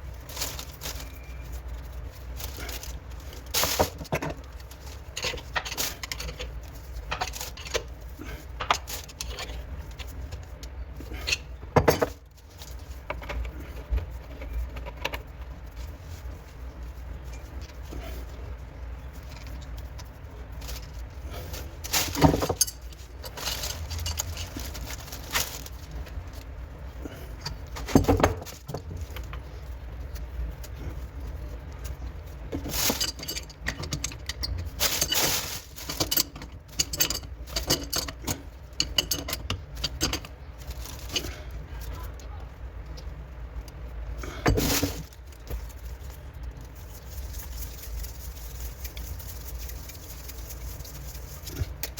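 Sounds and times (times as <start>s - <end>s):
metal tools clinking: 21.8s - 25.7s, 32.6s - 41.4s.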